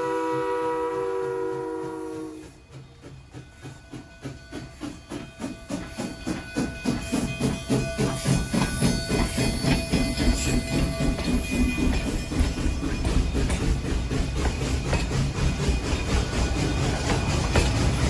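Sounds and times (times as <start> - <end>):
steam locomotive exhaust beating: 0.0 - 18.0.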